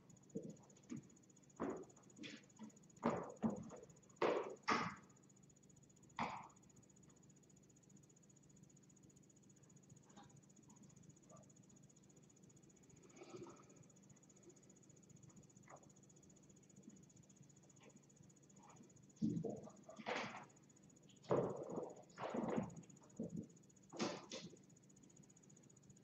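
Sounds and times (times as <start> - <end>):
faint room hum: 0.0 - 26.0.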